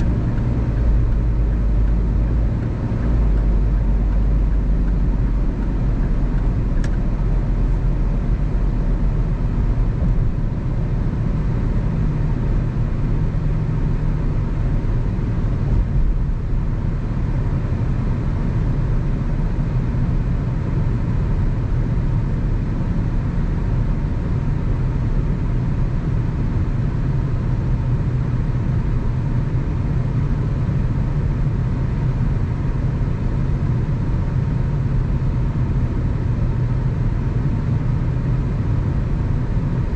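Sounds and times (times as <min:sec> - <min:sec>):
low engine drone: 0:00.0 - 0:39.9
faint tick: 0:06.4 - 0:07.0.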